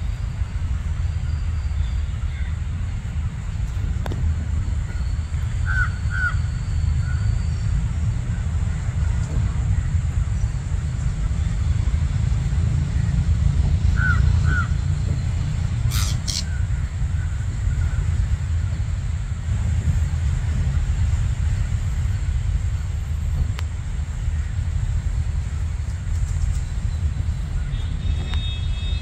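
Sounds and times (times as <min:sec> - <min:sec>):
steady low rumble: 0:00.0 - 0:29.0
birds calling: 0:04.6 - 0:07.8, 0:13.8 - 0:18.7.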